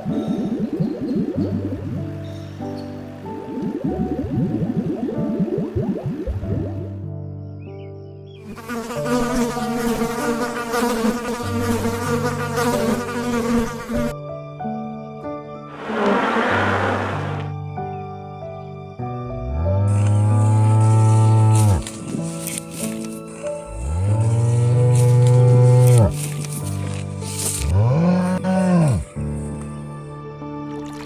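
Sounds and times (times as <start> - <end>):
soft background music: 0.0 - 31.0
insect buzzing: 8.4 - 14.1, 19.8 - 29.2.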